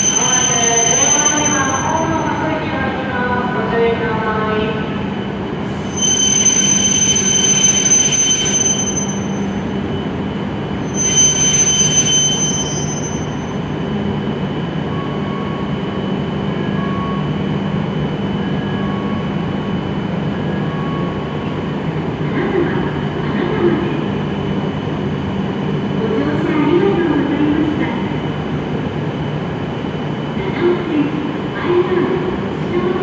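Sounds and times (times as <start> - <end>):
train running with low hum: 0.0 - 33.0
high-pitched squeals: 10.8 - 13.6.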